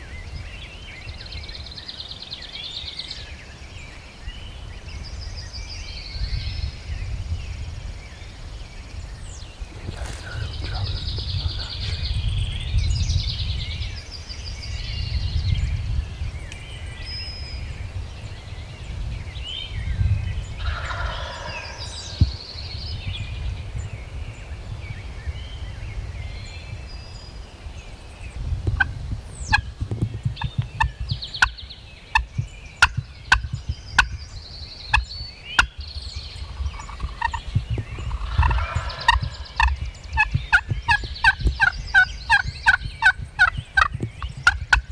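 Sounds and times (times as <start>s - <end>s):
high songbird calls: 0.0s - 44.9s
wild turkey gobbling: 20.6s - 22.2s, 30.4s - 34.1s, 36.4s - 44.9s
low rumble: 35.0s - 44.9s.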